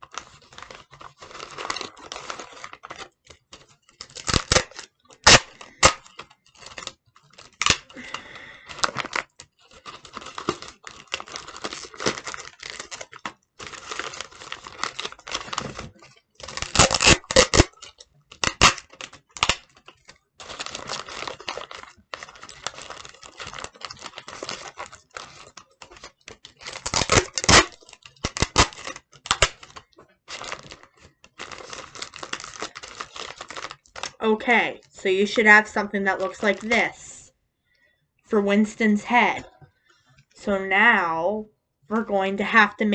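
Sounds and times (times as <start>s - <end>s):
paper crinkling: 0.0s - 37.0s
tape pulled and torn: 0.4s - 8.0s, 8.8s - 30.9s.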